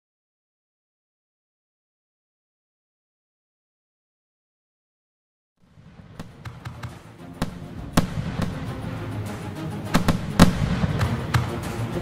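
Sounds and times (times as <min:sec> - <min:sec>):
music: 0:05.6 - 0:12.0
fireworks bangs: 0:05.7 - 0:08.8, 0:09.9 - 0:11.8.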